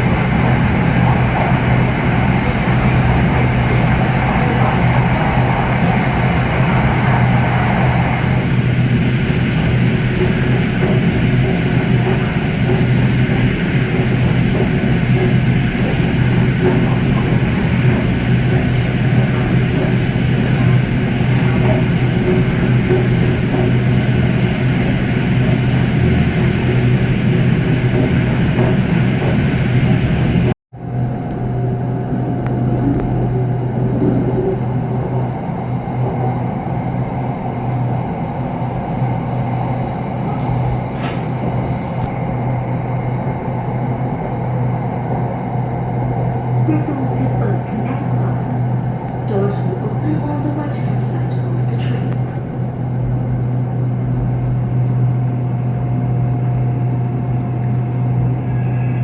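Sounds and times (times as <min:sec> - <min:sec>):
train running rumble: 0:00.0 - 0:59.0.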